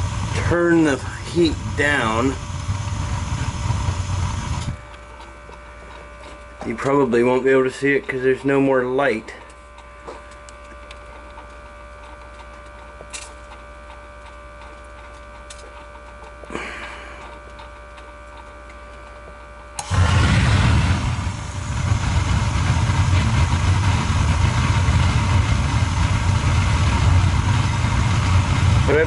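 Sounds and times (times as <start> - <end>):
gas burner lighting whoosh: 0.0 - 4.8, 19.8 - 29.0
burner rumbling and hissing: 0.0 - 11.0, 16.4 - 17.5, 19.8 - 29.0
faint steady hum: 0.0 - 29.0.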